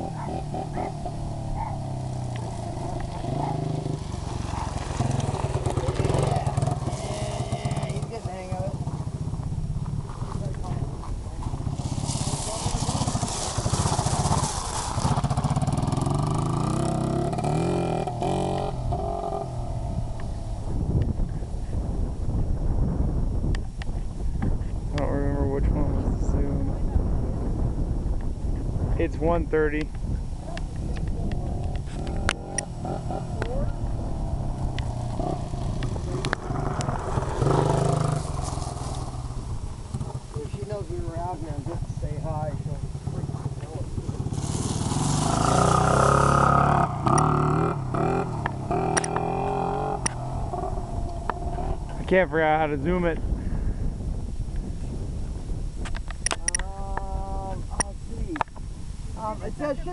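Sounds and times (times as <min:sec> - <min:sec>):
dirt bike engine revving: 0:00.0 - 0:09.4, 0:11.6 - 0:20.9, 0:31.4 - 0:42.0, 0:42.8 - 0:53.0.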